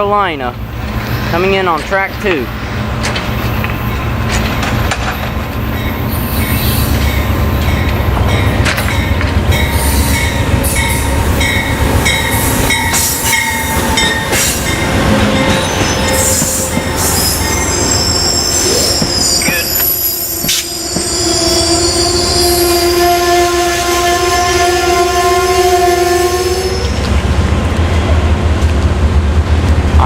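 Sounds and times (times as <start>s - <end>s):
diesel locomotive rumble: 0.0s - 30.0s
train brakes squealing: 5.7s - 7.9s, 9.6s - 11.6s, 12.2s - 27.0s.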